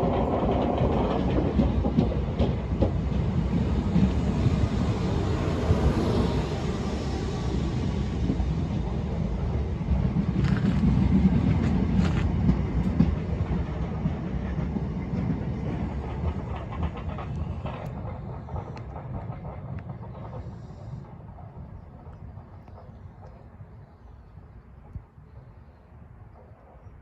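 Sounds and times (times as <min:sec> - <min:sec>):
wheels clicking over track: 0:00.0 - 0:05.9, 0:10.0 - 0:20.6
train rumbling on rails: 0:00.0 - 0:27.0.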